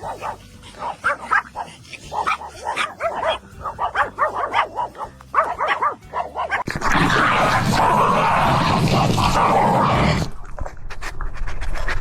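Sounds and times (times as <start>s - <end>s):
dog yipping and whining: 0.0s - 6.7s.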